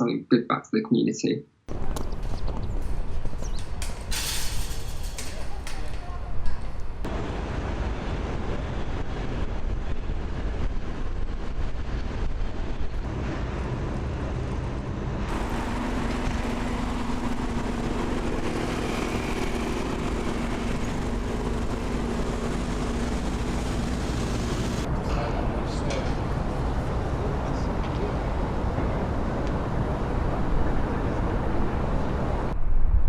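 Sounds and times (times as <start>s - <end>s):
rumble of engines or traffic: 1.7s - 33.0s.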